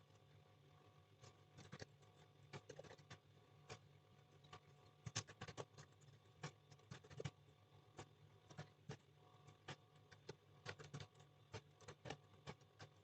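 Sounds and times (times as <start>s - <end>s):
low electrical hum: 0.0s - 13.0s
typing on computer keyboard: 2.5s - 3.8s, 5.1s - 7.4s, 9.6s - 13.0s.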